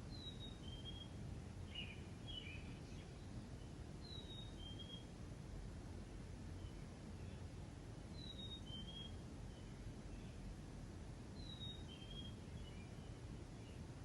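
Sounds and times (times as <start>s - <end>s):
low outdoor rumble: 0.0s - 14.0s
songbird whistling and chirping: 0.1s - 3.3s, 4.0s - 5.1s, 8.1s - 10.4s, 11.4s - 13.8s.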